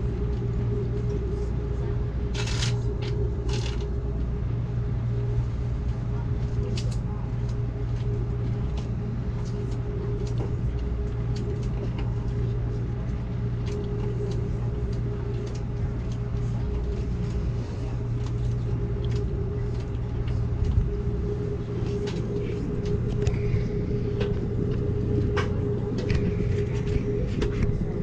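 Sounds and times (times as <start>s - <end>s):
train interior rumble: 0.0s - 28.0s
light clicks and creaks: 5.8s - 27.8s.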